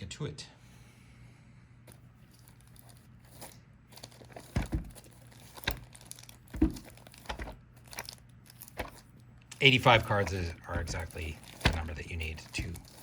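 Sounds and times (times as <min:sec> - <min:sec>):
plastic wrapping crinkling and tearing: 0:02.2 - 0:13.0
box knocking: 0:04.4 - 0:05.0, 0:06.5 - 0:07.5.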